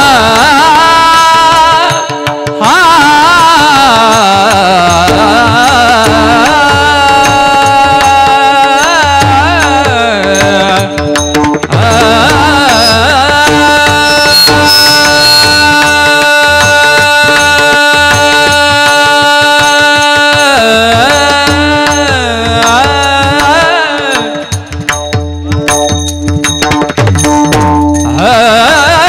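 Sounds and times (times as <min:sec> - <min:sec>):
tabla and pakhawaj strokes: 0:00.0 - 0:29.0
person singing long note: 0:12.1 - 0:17.0.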